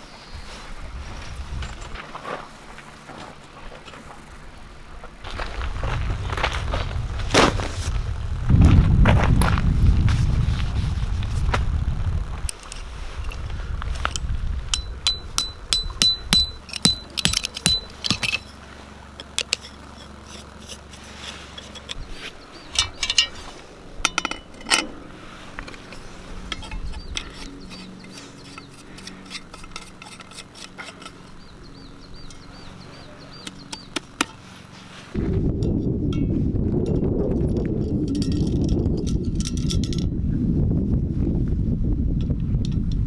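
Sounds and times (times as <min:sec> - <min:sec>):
metal camping gear clinking: 0:12.5 - 0:35.0
quick ringing metal taps: 0:14.7 - 0:18.6.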